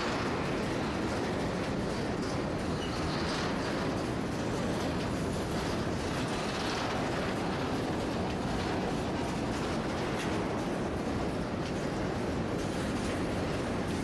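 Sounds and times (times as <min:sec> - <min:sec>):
train wheels on rail: 0:00.0 - 0:14.0.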